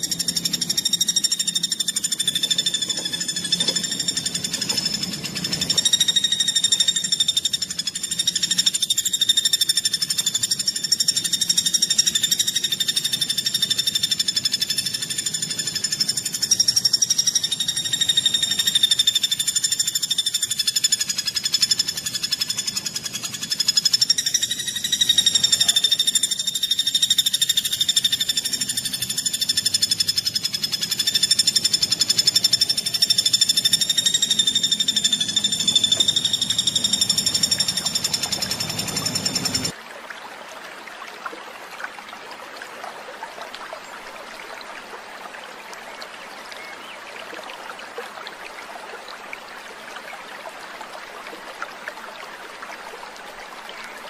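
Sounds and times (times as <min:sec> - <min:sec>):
songbird trilling: 0:00.0 - 0:39.8.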